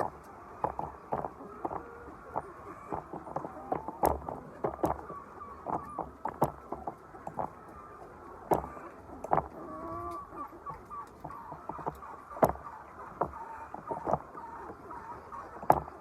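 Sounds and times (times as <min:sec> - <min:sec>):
hens clucking: 0:00.0 - 0:16.0
sharp knocks and clicks: 0:00.0 - 0:16.0.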